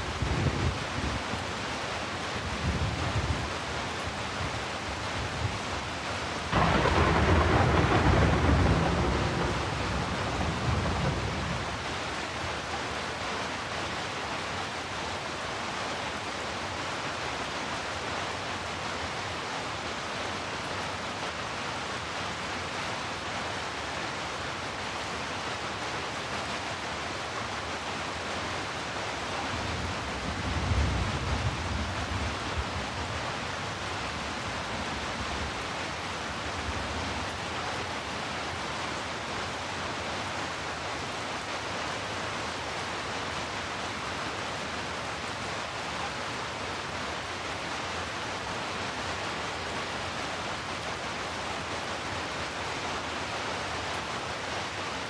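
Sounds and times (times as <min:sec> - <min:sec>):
heavy rain: 0:00.0 - 0:55.0
thunder rumble: 0:06.6 - 0:11.9.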